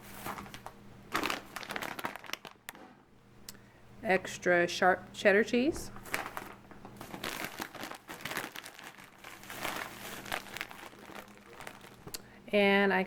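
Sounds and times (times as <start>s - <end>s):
plastic packaging crinkling: 0.0s - 2.8s, 6.0s - 12.2s.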